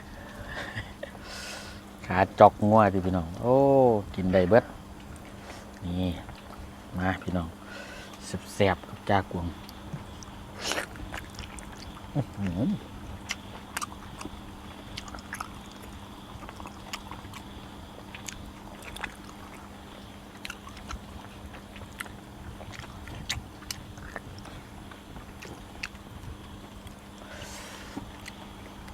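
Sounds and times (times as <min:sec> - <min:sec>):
steady low hum: 0:00.0 - 0:28.9
person chewing wet smacks: 0:09.1 - 0:28.9.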